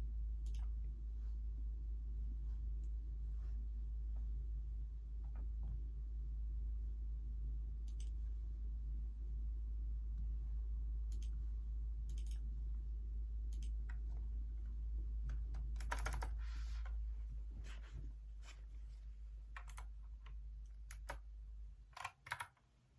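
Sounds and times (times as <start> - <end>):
steady low hum: 0.0 - 22.9
keyboard typing: 12.1 - 12.4, 15.6 - 16.4, 19.5 - 20.0, 20.7 - 21.2, 22.0 - 22.6.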